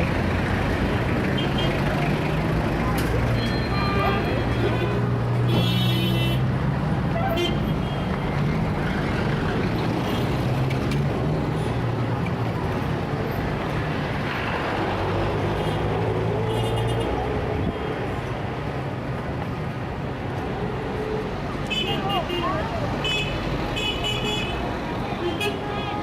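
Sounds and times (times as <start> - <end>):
vehicle engines and road noise: 0.0 - 26.0.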